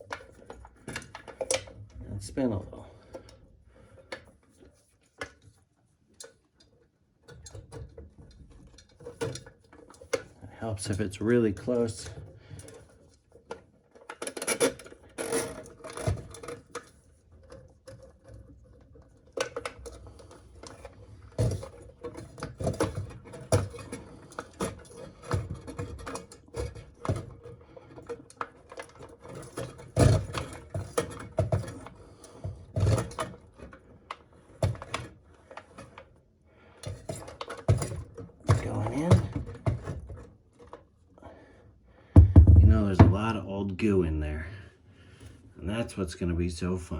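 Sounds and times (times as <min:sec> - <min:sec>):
drain auger cable scraping and rattling: 0:07.3 - 0:36.2, 0:36.8 - 0:40.8.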